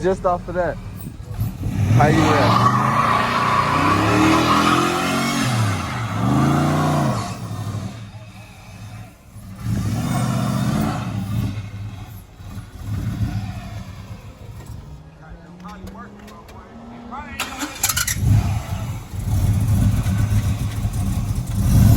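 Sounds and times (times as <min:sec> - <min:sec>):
car engine revving: 0:00.0 - 0:21.9.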